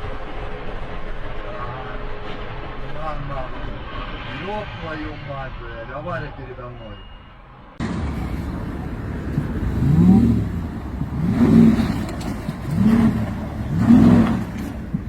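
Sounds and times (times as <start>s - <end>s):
road noise: 0.0s - 15.0s
car engine revving: 7.8s - 15.0s.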